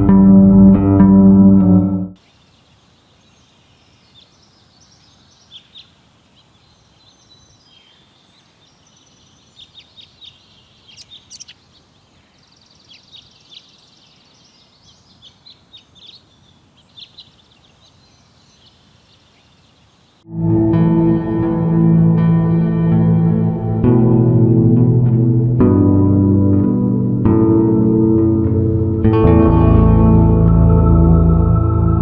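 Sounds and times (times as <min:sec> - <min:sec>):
ambient music: 0:00.0 - 0:02.2, 0:20.3 - 0:32.0
songbirds chirping: 0:02.1 - 0:20.3
faint steady hiss: 0:02.2 - 0:20.3
bird trill: 0:03.2 - 0:19.7.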